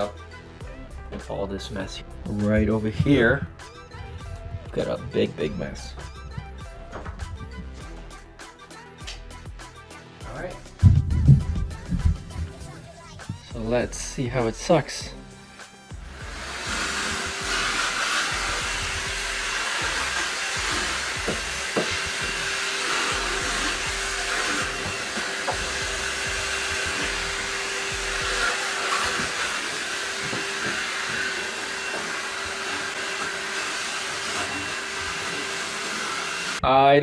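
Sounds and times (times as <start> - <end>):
stick vacuum running: 2.3 - 8.0, 15.9 - 36.6.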